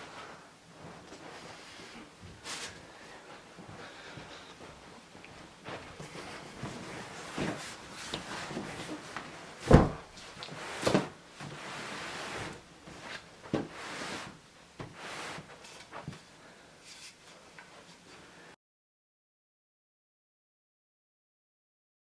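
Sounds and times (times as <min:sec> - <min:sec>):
cardboard rustling and scraping: 0:06.2 - 0:18.1
cardboard box knocks and thumps: 0:09.7 - 0:10.1.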